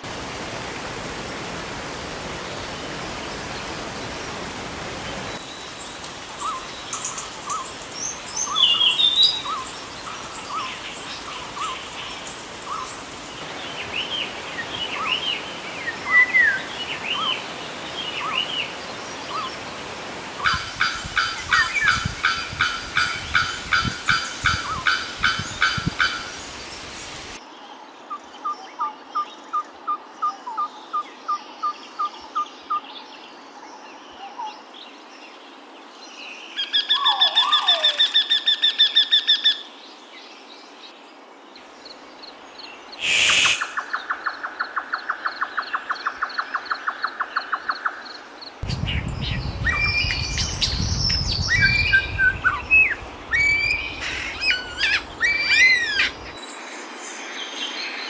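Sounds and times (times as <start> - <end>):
birds calling: 5.4 - 19.8, 42.8 - 47.9, 48.6 - 58.0
loud fast bird trill: 43.0 - 43.9, 48.7 - 56.4.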